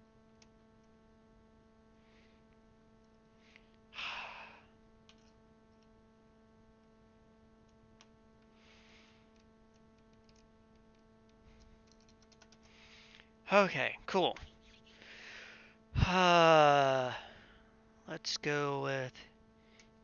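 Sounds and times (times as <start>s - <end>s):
electrical hum: 0.0s - 20.0s
breathy exhale: 3.4s - 4.6s, 15.0s - 15.8s.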